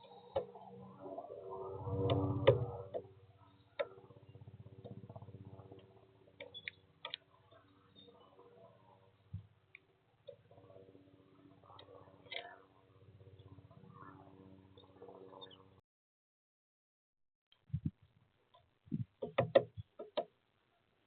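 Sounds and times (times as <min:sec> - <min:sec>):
low hum: 0:00.0 - 0:15.8.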